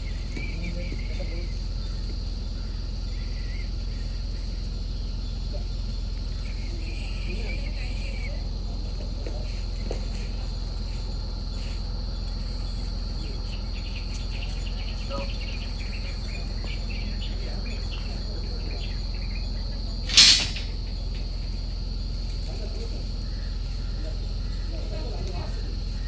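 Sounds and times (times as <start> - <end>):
insects droning: 0.0 - 26.0
loud noisy burst: 20.1 - 20.8.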